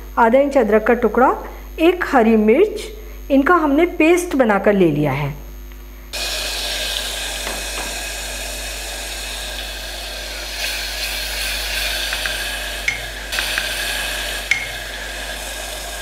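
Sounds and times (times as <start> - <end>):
paste sizzling in hot oil: 6.2 - 16.0
spatula tapping pot: 12.1 - 13.8, 14.4 - 15.0.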